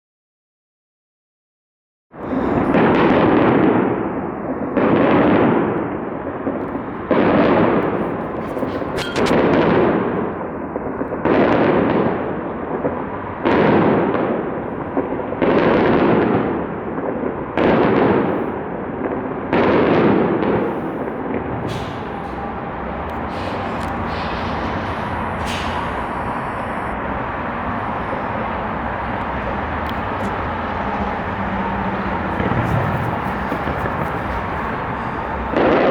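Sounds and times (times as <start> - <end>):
firework shells booming: 2.6 - 10.4, 29.9 - 35.9.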